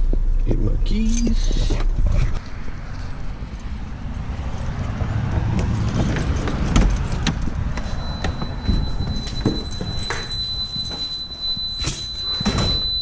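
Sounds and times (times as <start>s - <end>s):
keys jangling: 1.0s - 1.9s, 2.9s - 7.7s, 9.6s - 12.7s
low rumble: 1.4s - 11.8s
thin high whine: 7.7s - 13.0s.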